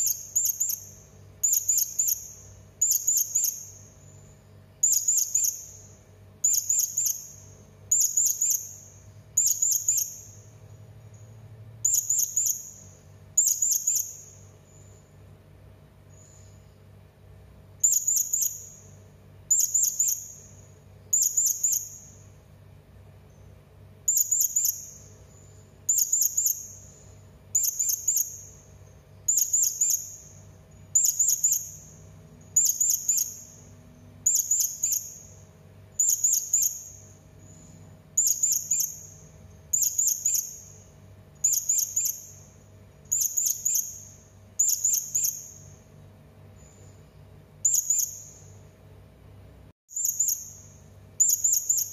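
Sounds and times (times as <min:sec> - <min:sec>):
parrot high-pitched chirps: 0:00.0 - 0:04.1, 0:04.8 - 0:10.5, 0:11.8 - 0:14.5, 0:17.8 - 0:22.3, 0:24.1 - 0:25.2, 0:25.9 - 0:28.6, 0:29.3 - 0:37.2, 0:38.2 - 0:45.8, 0:47.6 - 0:48.6, 0:49.9 - 0:51.9
faint low hum: 0:00.0 - 0:51.9.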